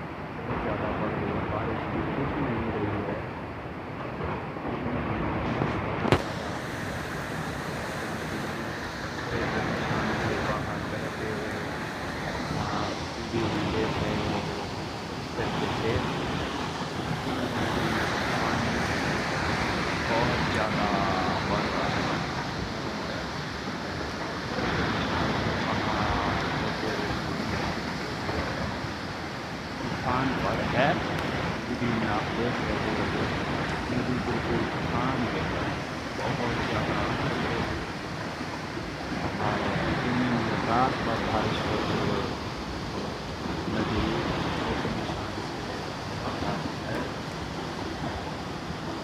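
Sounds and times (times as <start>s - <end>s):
river rushing: 0.0s - 49.0s.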